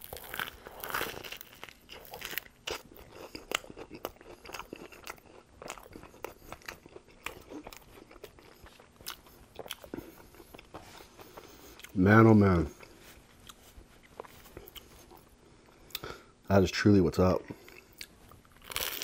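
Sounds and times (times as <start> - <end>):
crisp crunches of chewing sandwich: 0.0 - 11.9, 17.8 - 19.0.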